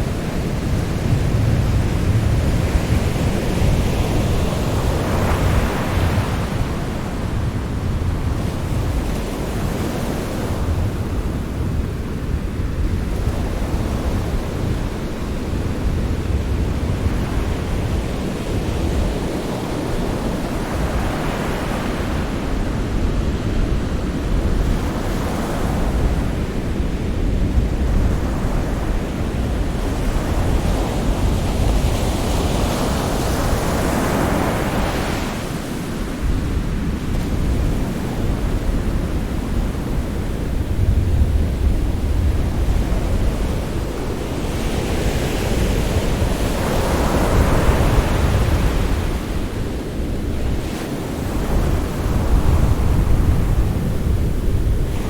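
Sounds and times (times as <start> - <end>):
sea surf rumble: 0.0 - 55.0
waves washing in: 14.2 - 55.0.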